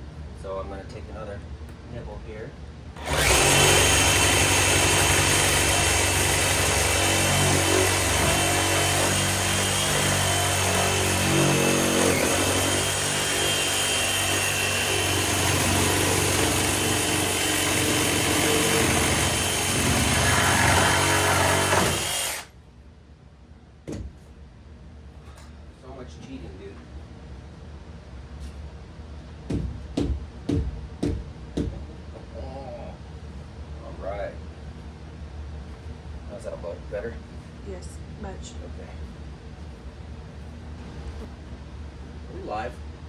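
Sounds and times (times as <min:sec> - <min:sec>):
power tool cutting wood: 0:03.0 - 0:22.5.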